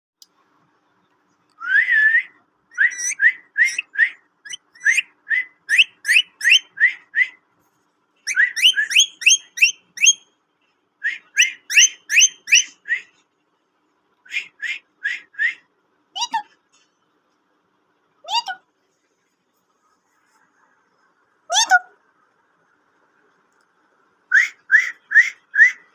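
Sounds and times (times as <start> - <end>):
parrot whistling: 1.6 - 7.4, 8.3 - 10.2, 11.0 - 13.1, 24.3 - 25.9.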